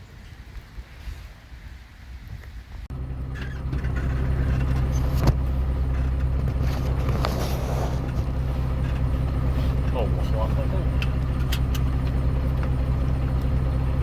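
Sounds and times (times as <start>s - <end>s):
diesel engine idling: 2.9s - 14.0s.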